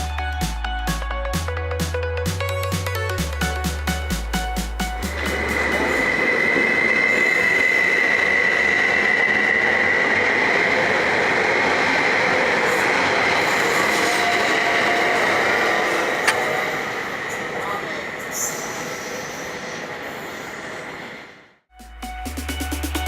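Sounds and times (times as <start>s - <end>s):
rail vehicle rolling rumble: 3.6s - 21.5s
high-pitched whine: 4.0s - 20.5s.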